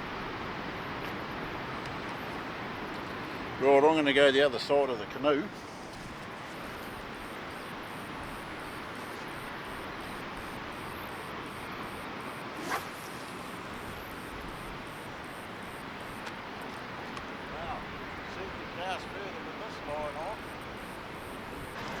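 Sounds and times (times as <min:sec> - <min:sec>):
surf washing on beach: 0:00.0 - 0:22.0.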